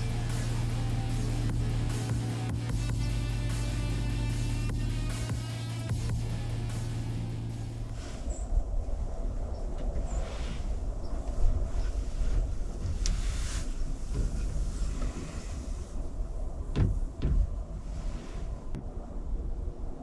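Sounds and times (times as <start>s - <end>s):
wind rumble on microphone: 4.3s - 20.0s.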